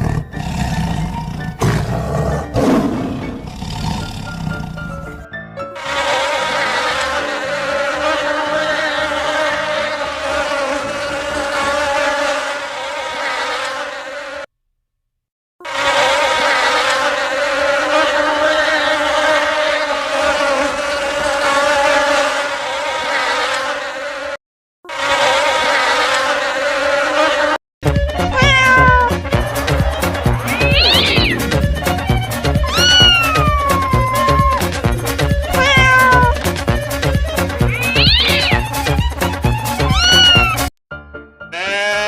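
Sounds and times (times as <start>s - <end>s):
insect wings buzzing: 37.4s - 38.8s.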